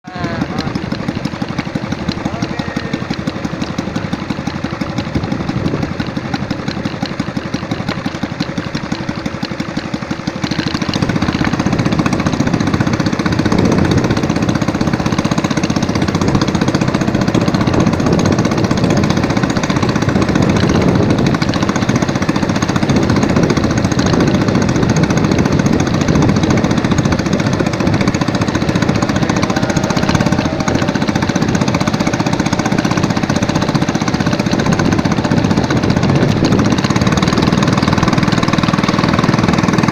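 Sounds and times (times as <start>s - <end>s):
small engine knocking: 0.0s - 39.9s.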